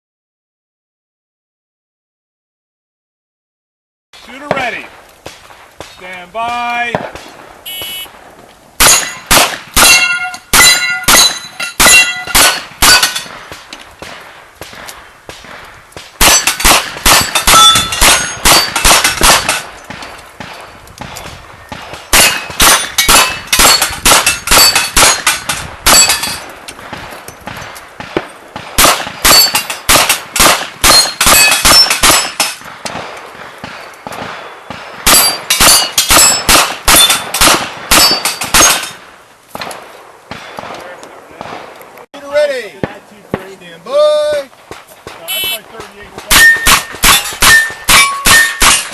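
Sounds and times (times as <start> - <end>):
steel target plates clanging: 8.8 - 13.4, 16.2 - 20.2, 22.2 - 26.5, 29.3 - 32.6, 35.1 - 39.0, 45.8 - 48.9.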